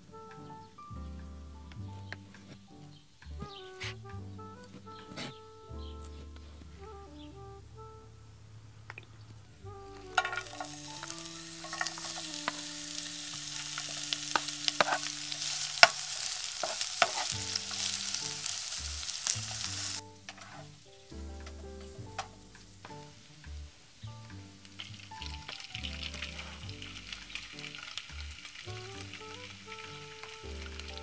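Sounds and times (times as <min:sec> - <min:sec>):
wooden spoon scraping a pan: 0:10.1 - 0:20.8
vegetables sizzling in oil: 0:10.2 - 0:21.0, 0:22.7 - 0:31.0.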